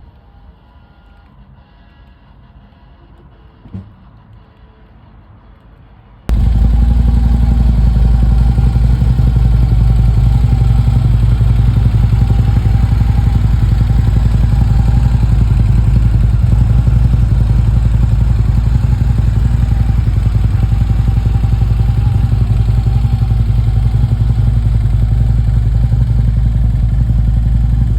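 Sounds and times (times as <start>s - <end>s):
motorcycle engine running: 6.3s - 27.9s.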